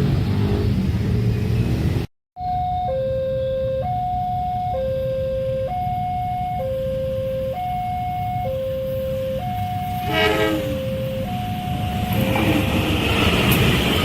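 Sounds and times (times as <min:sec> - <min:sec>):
two-tone level-crossing alarm: 0:02.4 - 0:12.6
horn blast: 0:09.9 - 0:11.2.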